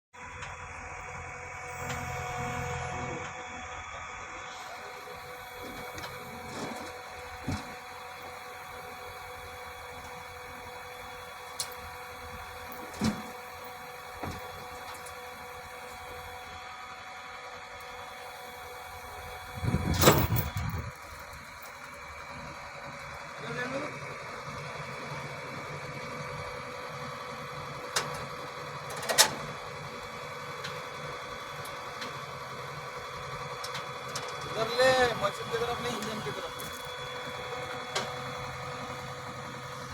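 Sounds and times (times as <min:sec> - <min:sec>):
steady background hum: 0:19.4 - 0:21.9.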